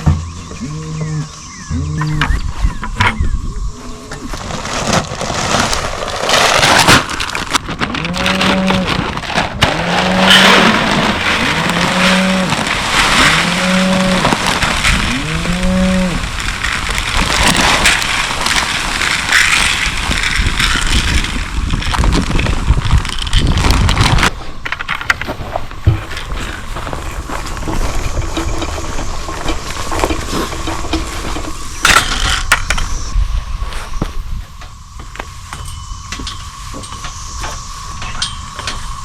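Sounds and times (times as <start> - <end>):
pitched tones: 0.2 - 4.3.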